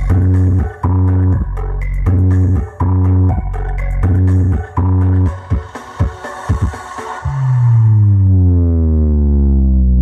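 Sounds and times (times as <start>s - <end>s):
loud electronic dance music: 0.0s - 8.5s
deep bass note sliding down: 7.3s - 10.0s.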